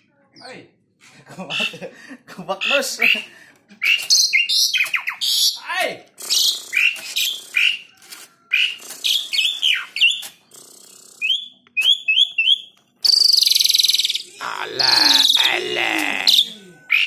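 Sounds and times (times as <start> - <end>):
starling whistled song: 3.8 - 5.6, 8.5 - 10.3, 11.2 - 14.4
harsh rasping bird call: 13.9 - 17.0.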